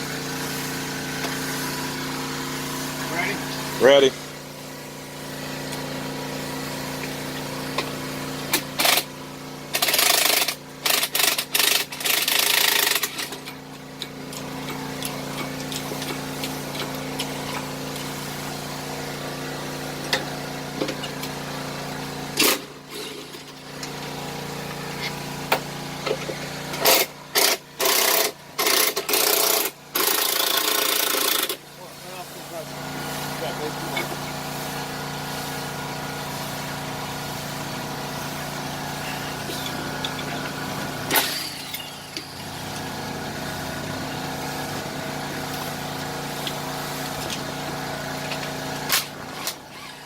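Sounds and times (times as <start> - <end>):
steady machine hum: 0.0 - 49.5
impact wrench rattling: 8.5 - 9.1, 9.7 - 13.6, 25.5 - 31.6, 39.5 - 42.4.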